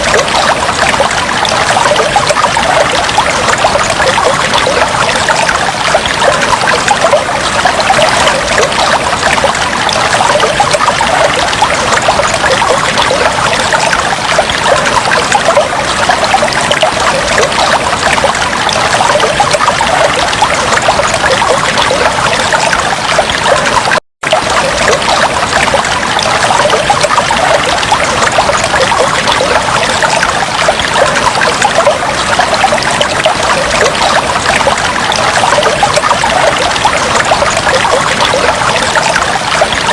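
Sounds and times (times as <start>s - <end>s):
aquarium water trickling and bubbling: 0.0s - 39.9s.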